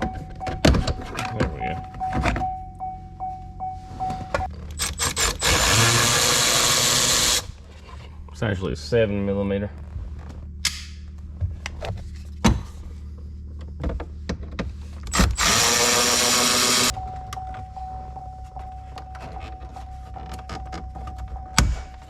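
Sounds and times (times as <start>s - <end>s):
cordless drill running: 5.0s - 7.5s, 15.1s - 16.9s.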